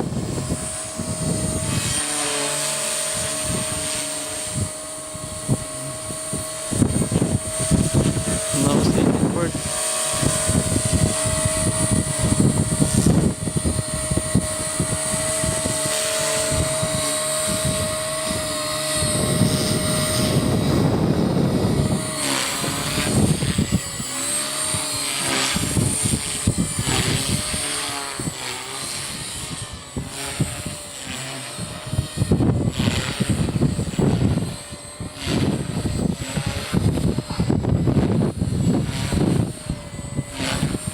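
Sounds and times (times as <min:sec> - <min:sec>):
rc helicopter rotor whine: 0:00.0 - 0:40.9
wind buffeting microphone: 0:00.0 - 0:40.9.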